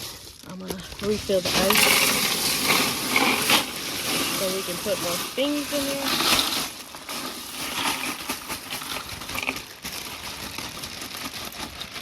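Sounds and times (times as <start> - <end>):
ice cubes clattering into cooler: 0.0 - 12.0.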